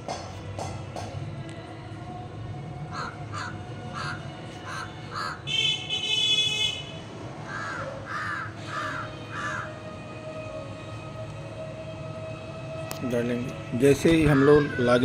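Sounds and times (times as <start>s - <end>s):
bird harsh calls: 2.9s - 5.4s, 7.5s - 9.7s.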